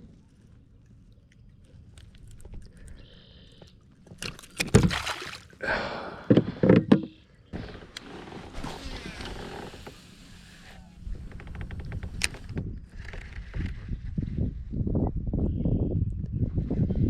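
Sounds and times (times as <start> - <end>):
water splashing around kayak: 0.0 - 5.9
sharp splashes and knocks: 4.0 - 5.6.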